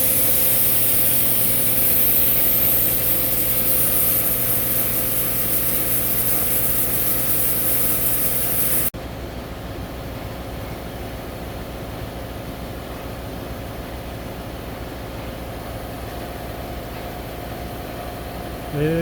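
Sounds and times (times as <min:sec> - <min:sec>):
air compressor running: 0:00.0 - 0:08.9
air hissing into inner tube: 0:00.0 - 0:08.9.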